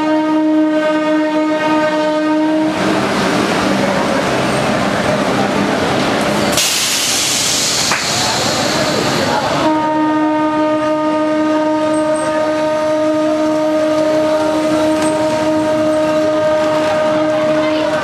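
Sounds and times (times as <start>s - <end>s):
locomotive horn: 0.0s - 2.9s, 9.6s - 18.0s
train running: 0.0s - 18.0s
loud hiss: 6.5s - 9.5s.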